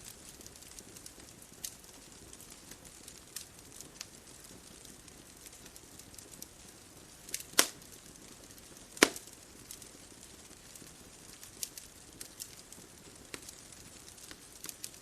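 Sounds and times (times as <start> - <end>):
wood fire crackling: 0.0 - 15.0
loud sharp fire pops: 7.3 - 15.0.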